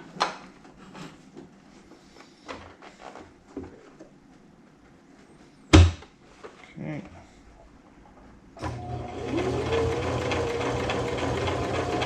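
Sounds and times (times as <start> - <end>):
soft handling knocks and rustles: 0.0 - 5.6.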